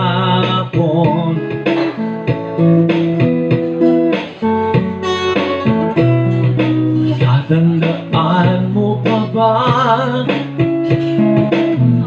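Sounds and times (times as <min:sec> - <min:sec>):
person singing: 0:00.0 - 0:02.0, 0:06.4 - 0:12.0
guitar strumming chords: 0:00.0 - 0:12.0.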